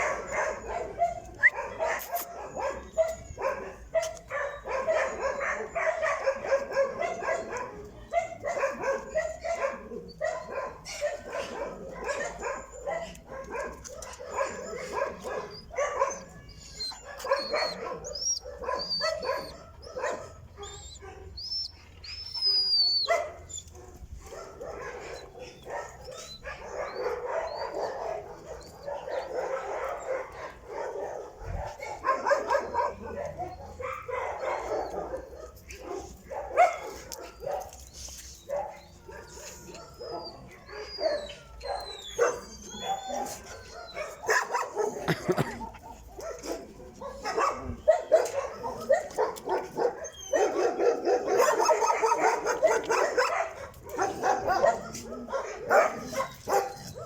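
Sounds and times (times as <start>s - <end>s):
dogs barking and yelping: 0.0s - 57.0s
dog whining: 14.3s - 23.8s, 38.4s - 45.9s, 47.6s - 51.5s.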